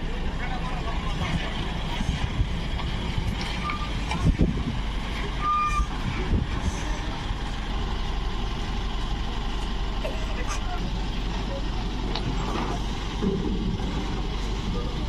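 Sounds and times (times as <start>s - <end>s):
heavy truck engines running: 0.0s - 15.0s.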